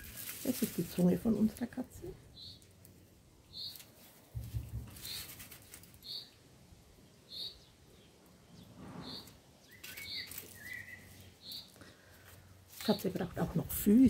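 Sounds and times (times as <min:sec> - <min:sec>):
bird chirping: 0:02.3 - 0:02.8, 0:03.4 - 0:11.9.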